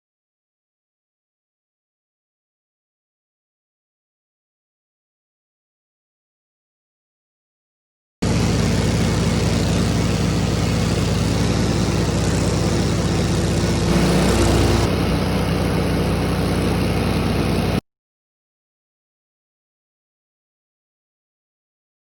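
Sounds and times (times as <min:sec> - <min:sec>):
riding lawn mower engine running: 0:08.2 - 0:17.8.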